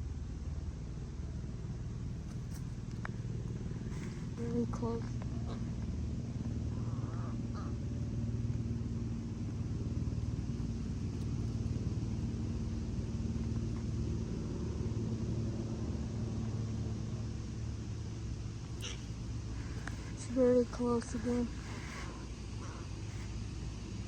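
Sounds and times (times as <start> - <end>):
low motor hum: 0.0 - 24.0
crow cawing: 6.7 - 8.0, 18.8 - 19.8.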